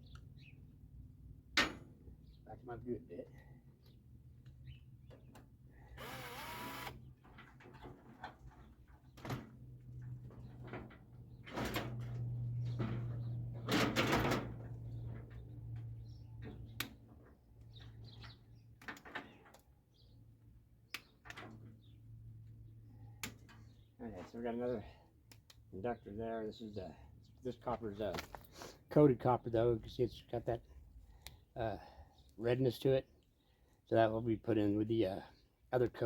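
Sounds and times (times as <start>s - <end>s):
power drill backing out screws: 6.0s - 7.0s.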